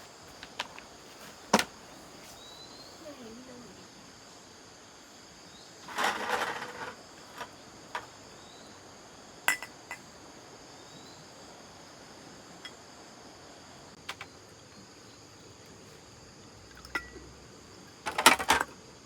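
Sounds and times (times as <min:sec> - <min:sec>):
insects chirring: 0:00.0 - 0:19.0
rattling clatter: 0:05.9 - 0:07.0.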